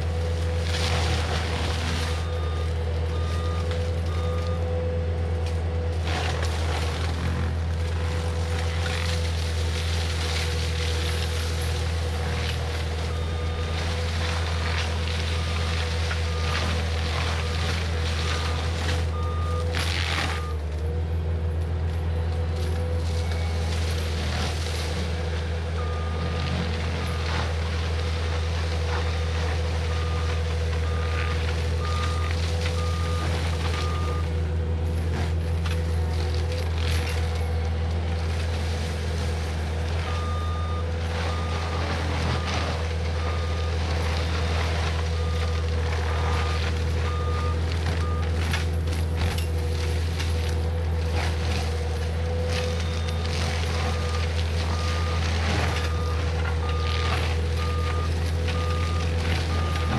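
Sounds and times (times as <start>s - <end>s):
track loader engine drone: 0.0s - 59.9s.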